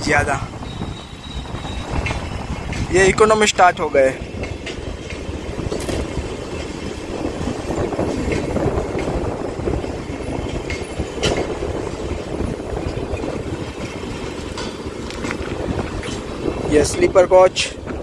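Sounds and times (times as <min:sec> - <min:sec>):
train wheels rumbling on track: 0:00.0 - 0:18.0.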